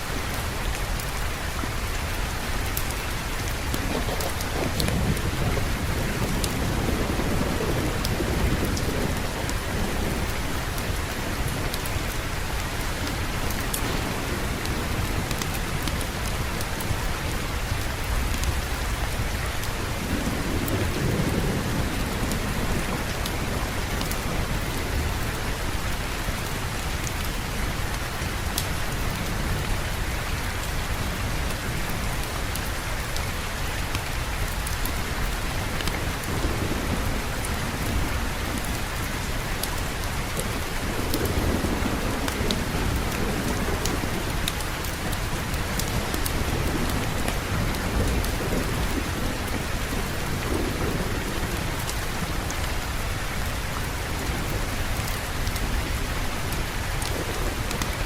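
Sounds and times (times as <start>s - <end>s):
steady rain falling: 0.0s - 58.0s
low roll of thunder: 3.5s - 27.3s, 40.3s - 58.0s.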